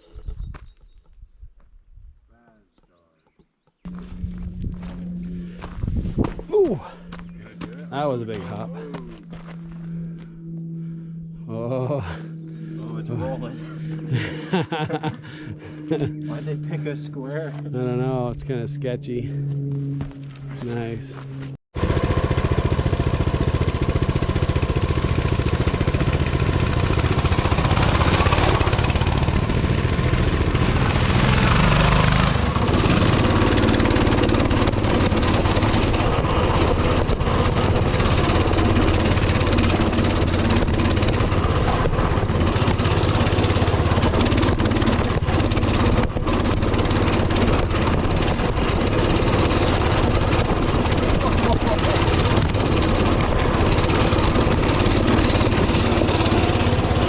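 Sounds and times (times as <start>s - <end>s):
mini bike engine running: 21.8s - 57.0s.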